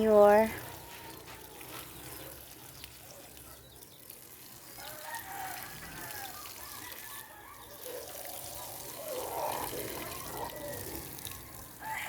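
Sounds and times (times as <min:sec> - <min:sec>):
distant rooster crowing: 0:00.6 - 0:01.5, 0:04.8 - 0:08.2, 0:08.8 - 0:12.0.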